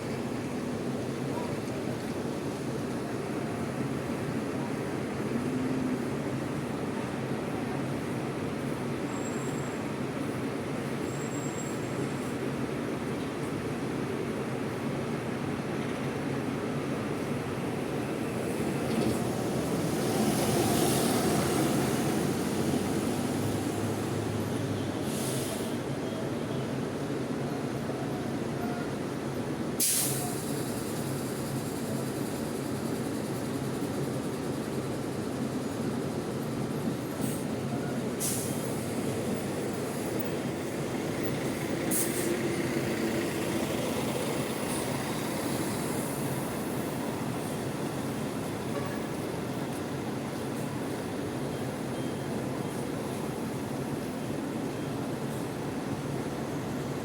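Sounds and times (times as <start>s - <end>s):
diesel bus engine running: 0.0s - 57.0s
short air hisses: 25.0s - 25.8s, 29.8s - 31.2s, 38.2s - 38.8s, 41.9s - 42.4s.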